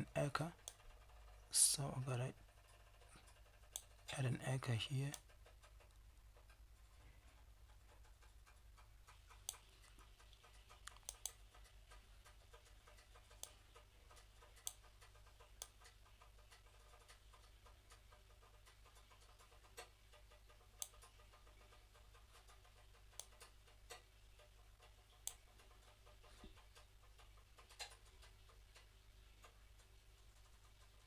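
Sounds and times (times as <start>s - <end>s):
mouse and keyboard clicks: 7.8s - 29.6s.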